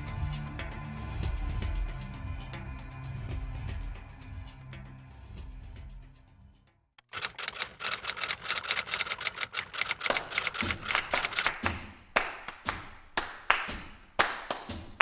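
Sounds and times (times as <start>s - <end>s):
background music: 0.0s - 6.4s
typewriter key clacks: 7.0s - 11.7s.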